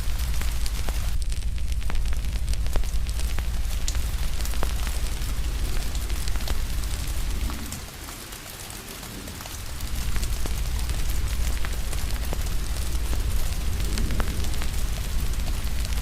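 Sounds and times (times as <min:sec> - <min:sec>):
deep low rumble: 0:00.0 - 0:07.8, 0:09.4 - 0:16.0
steady rain hiss: 0:00.0 - 0:16.0
wood fire crackling and popping: 0:00.0 - 0:16.0.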